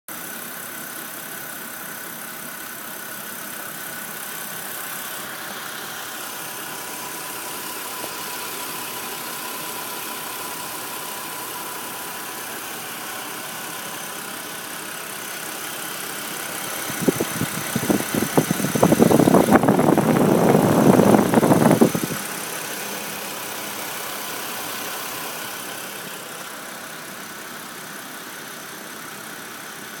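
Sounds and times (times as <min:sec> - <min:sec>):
car engine idling: 0:00.1 - 0:30.0
rapid engine knocking: 0:10.4 - 0:30.0.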